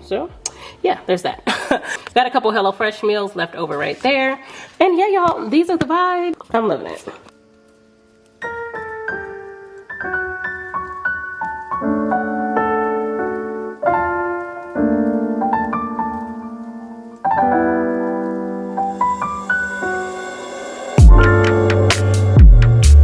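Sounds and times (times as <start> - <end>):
soft piano music: 7.3 - 23.0.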